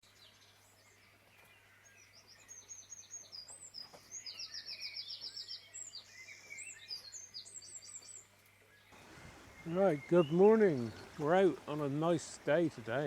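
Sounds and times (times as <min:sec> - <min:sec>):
songbirds chirping and whistling: 0:00.0 - 0:13.0
rapid bird trill: 0:08.9 - 0:13.0.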